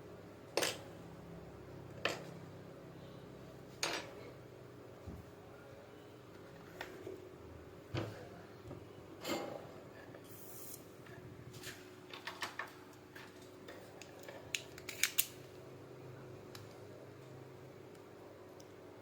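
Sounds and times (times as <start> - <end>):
faint steady hum: 0.0 - 9.2.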